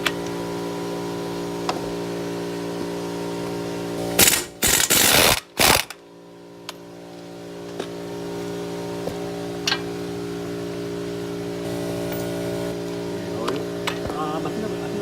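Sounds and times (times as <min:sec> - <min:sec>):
steady background hum: 0:00.0 - 0:15.0
impact wrench bursts: 0:04.1 - 0:06.0.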